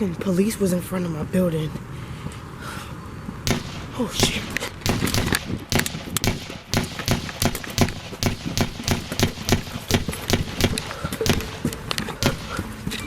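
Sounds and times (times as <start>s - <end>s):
rapid sharp bangs: 3.5s - 13.0s.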